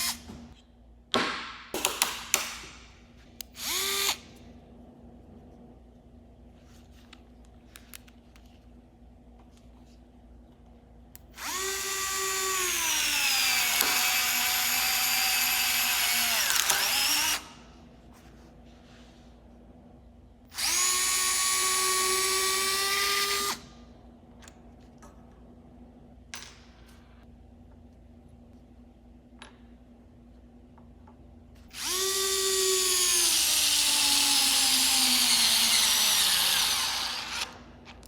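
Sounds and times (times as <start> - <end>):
electric screwdriver motor whining: 31.8 - 37.6.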